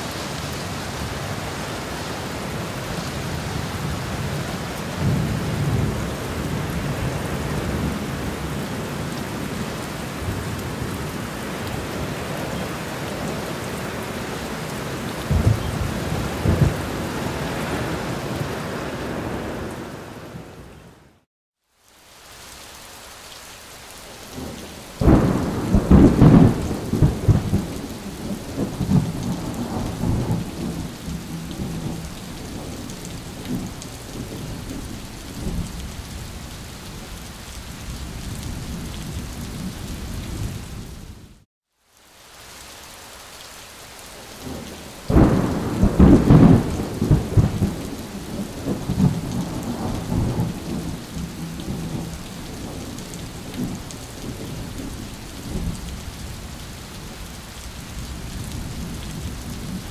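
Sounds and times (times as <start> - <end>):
rain hiss: 0.0 - 59.9
thunder claps rumbling: 15.2 - 18.5, 24.4 - 35.9, 44.4 - 55.9.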